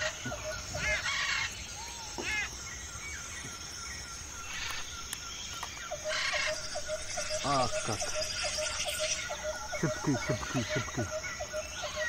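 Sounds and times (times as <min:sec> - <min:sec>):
birds calling: 0:00.0 - 0:12.0
high-pitched background noise: 0:06.0 - 0:12.0.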